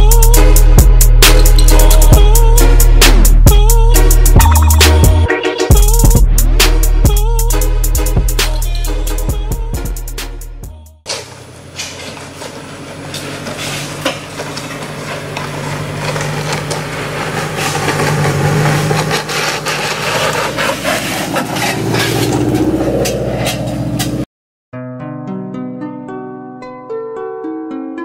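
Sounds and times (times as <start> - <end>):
car engine approaching: 11.2 - 24.3.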